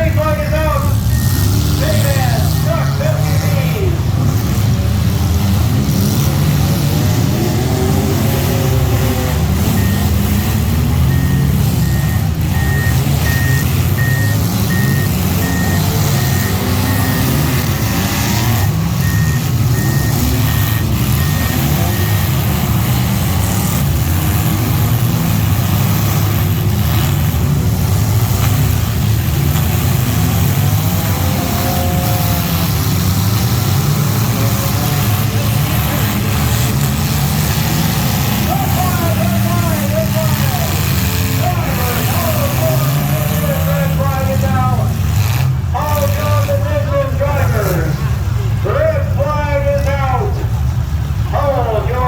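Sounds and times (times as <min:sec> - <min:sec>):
heavy vehicle engine running: 0:00.0 - 0:52.0
backup alarm beeping: 0:01.1 - 0:03.0, 0:09.6 - 0:22.6.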